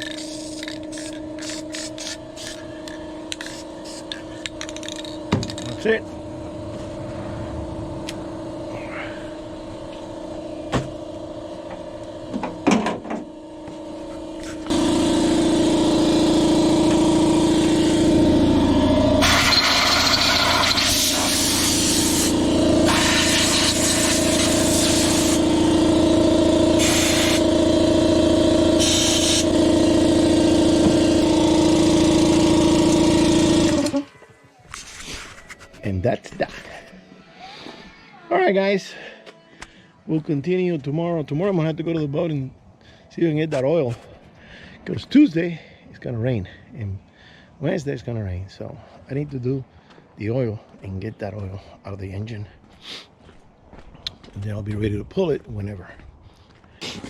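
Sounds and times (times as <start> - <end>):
paint spray hissing: 0.0 - 5.7, 19.2 - 25.6, 26.8 - 27.5, 28.8 - 29.5
paint sprayer motor humming: 0.0 - 34.2.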